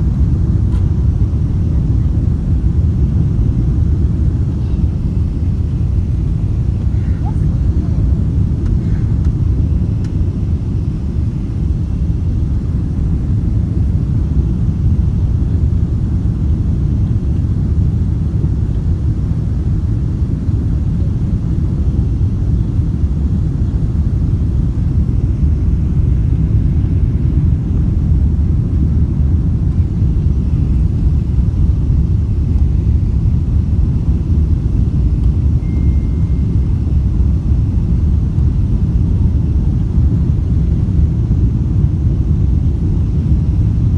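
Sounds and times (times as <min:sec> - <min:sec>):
airliner cabin rumble: 0:00.0 - 0:43.9.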